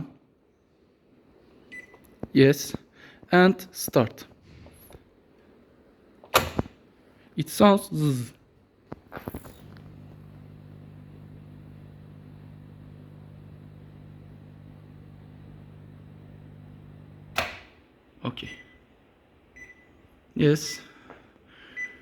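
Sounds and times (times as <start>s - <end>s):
microwave mains buzz: 9.1s - 17.8s
power switch thump: 17.2s - 17.8s.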